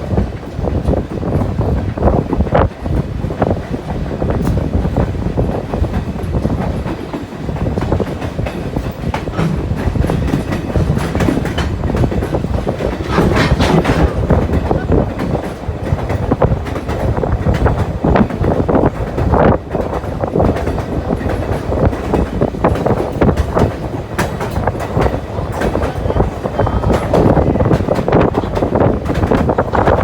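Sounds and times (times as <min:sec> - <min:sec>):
train rumbling on track: 0:00.0 - 0:30.0
wheels knocking and clattering: 0:03.6 - 0:30.0.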